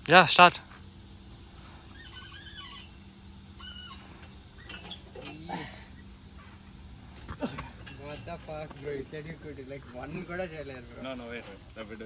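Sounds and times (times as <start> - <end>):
faint bird calls: 0.8 - 8.2.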